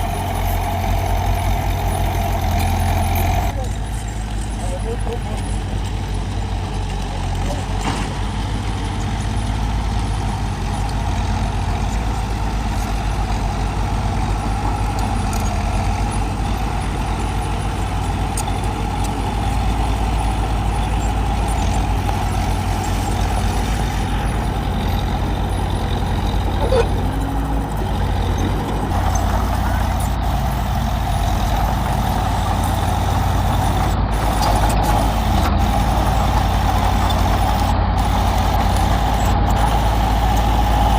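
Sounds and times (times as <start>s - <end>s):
diesel engine rumble: 0.0s - 40.9s
high mechanical drone: 16.1s - 40.9s.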